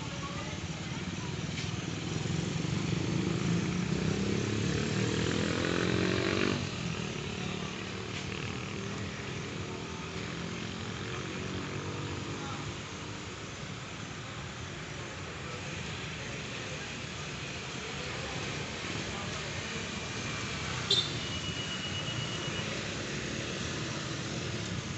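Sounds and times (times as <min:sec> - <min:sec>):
road traffic noise: 0:00.0 - 0:24.9
motorcycle engine accelerating: 0:02.0 - 0:07.1.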